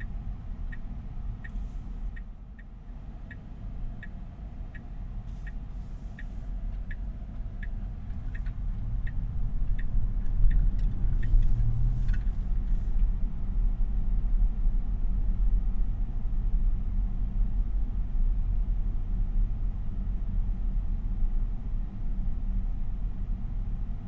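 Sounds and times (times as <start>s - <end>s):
turn signal ticking: 0.0s - 13.1s
road and tyre rumble: 0.0s - 24.0s.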